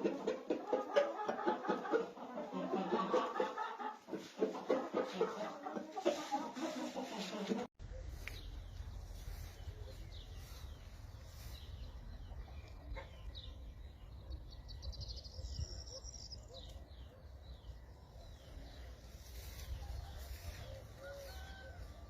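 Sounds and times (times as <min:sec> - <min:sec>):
steady low rumble: 0:07.8 - 0:15.8
birds chirping: 0:07.8 - 0:22.0.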